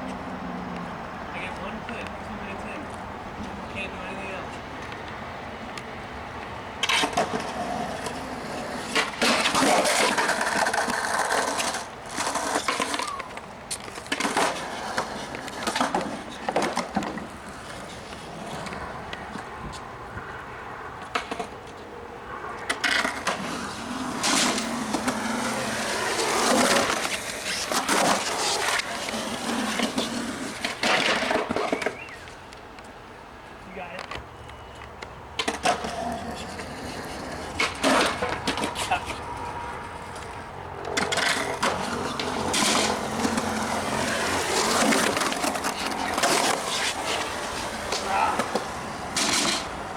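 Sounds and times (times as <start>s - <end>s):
skateboard wheels rolling: 4.5s - 49.9s
skateboard clacking on ground: 6.8s - 19.9s, 21.0s - 21.8s, 22.6s - 32.7s, 33.9s - 49.9s.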